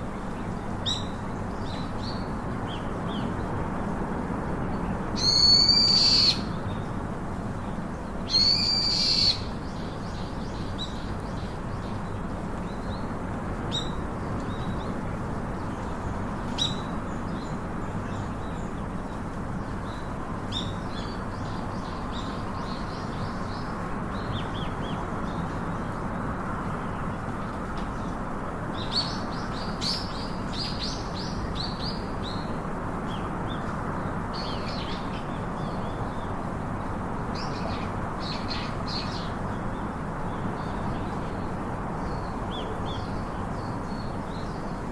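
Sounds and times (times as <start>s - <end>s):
birds twittering: 0.1s - 3.6s, 4.6s - 44.9s
birds calling and chirping: 0.2s - 3.5s, 4.7s - 44.9s.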